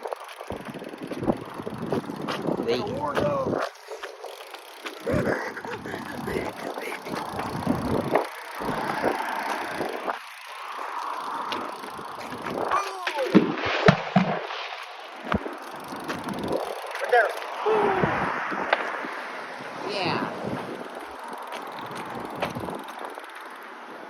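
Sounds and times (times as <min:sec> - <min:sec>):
fireworks crackling and popping: 0:00.0 - 0:19.8
fireworks bangs: 0:13.2 - 0:15.5.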